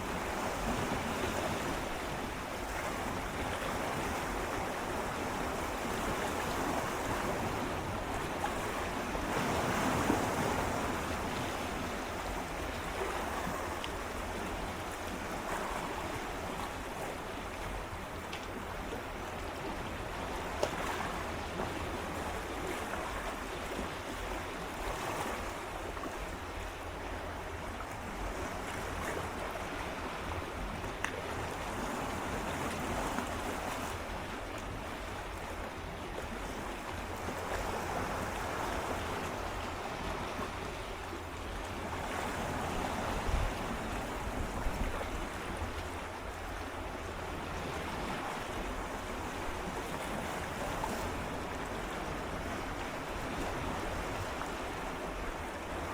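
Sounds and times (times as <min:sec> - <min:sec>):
waves lapping against rocks: 0:00.0 - 0:55.9
wind rumble on microphone: 0:27.1 - 0:55.9.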